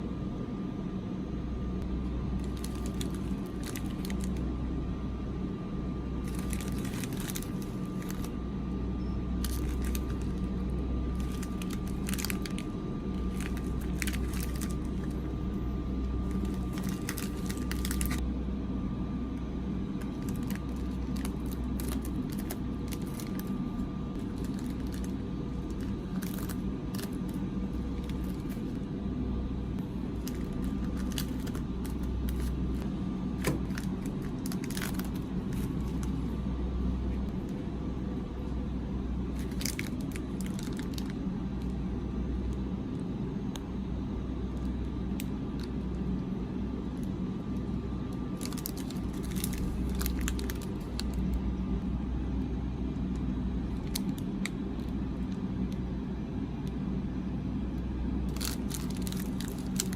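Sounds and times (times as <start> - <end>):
steady low hum: 0.0 - 59.9
packaging crinkling and rustling: 2.4 - 4.4, 6.2 - 8.4, 9.4 - 15.3, 16.2 - 18.2, 20.0 - 28.8, 30.1 - 36.3, 39.4 - 41.7, 48.4 - 51.3, 53.7 - 55.8, 58.3 - 59.9.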